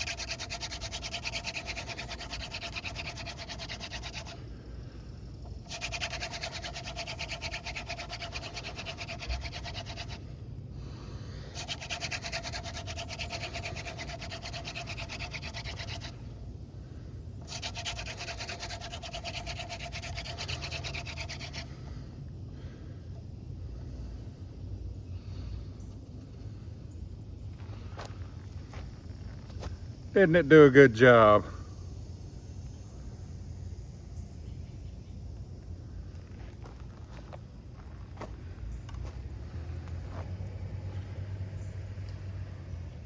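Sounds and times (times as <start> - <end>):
wooden spindle grinding in board: 0.0 - 4.4, 5.5 - 10.2, 11.5 - 16.2, 17.4 - 21.7.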